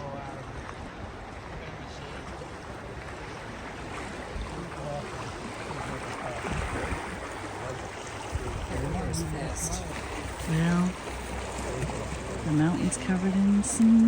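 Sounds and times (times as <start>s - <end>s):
fast-flowing river rushing: 0.0s - 14.0s
wind buffeting microphone: 6.3s - 7.4s, 8.1s - 14.0s.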